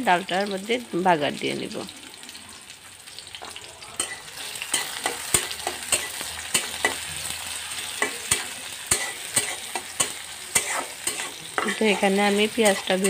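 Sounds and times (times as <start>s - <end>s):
onion sizzling in hot oil: 0.0s - 13.0s
spatula scraping metal pan: 4.0s - 13.0s.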